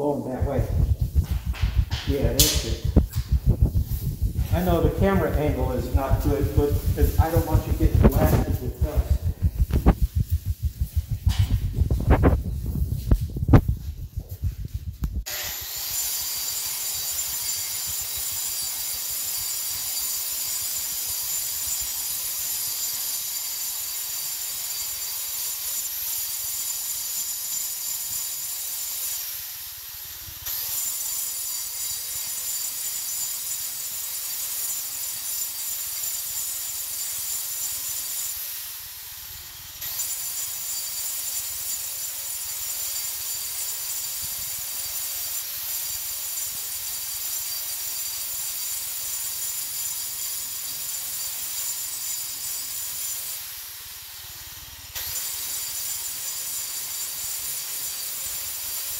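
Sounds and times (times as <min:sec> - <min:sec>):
power grinder grinding concrete: 0:04.5 - 0:10.3, 0:15.3 - 0:29.4, 0:30.5 - 0:38.5, 0:39.8 - 0:53.5, 0:54.1 - 0:58.9.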